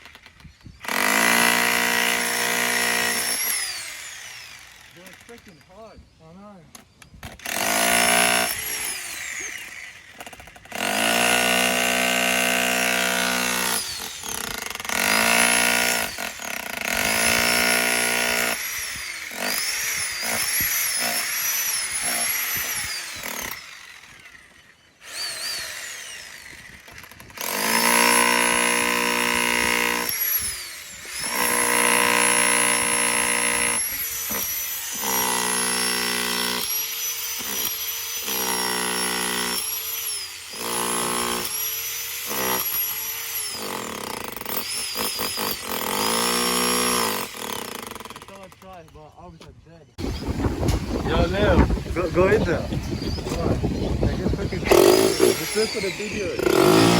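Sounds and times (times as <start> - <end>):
jackhammer hammering: 0.0 - 5.6, 7.3 - 49.0, 50.0 - 56.9.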